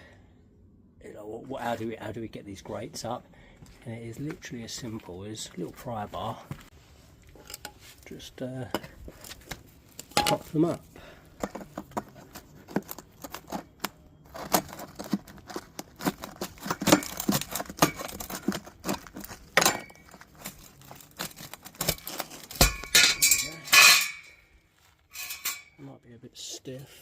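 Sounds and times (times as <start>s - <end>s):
pry bar scraping metal grates: 11.4s - 24.4s, 25.1s - 25.8s.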